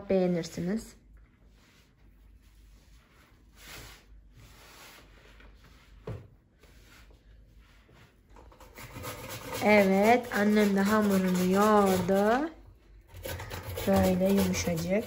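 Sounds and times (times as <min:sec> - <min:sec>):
faint soft rustling: 0:01.2 - 0:08.4.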